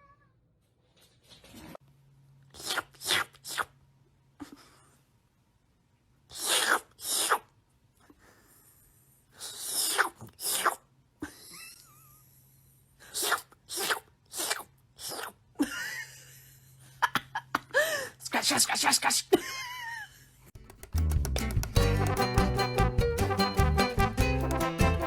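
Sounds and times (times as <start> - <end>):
cat sneezing: 2.6 - 3.8, 6.3 - 7.5, 9.4 - 10.8, 13.1 - 15.4.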